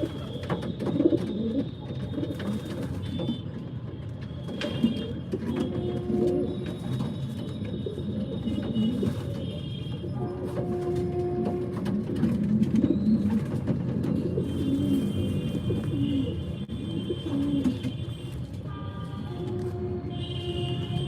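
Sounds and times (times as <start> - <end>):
pigeons cooing: 0.0 - 2.7, 10.3 - 18.0.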